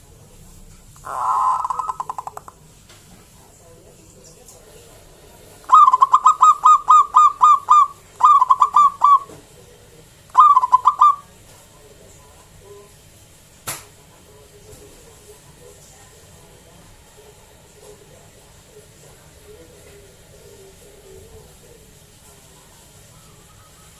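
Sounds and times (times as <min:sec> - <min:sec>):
dove cooing: 0:01.0 - 0:02.6, 0:05.6 - 0:09.4, 0:10.3 - 0:11.3.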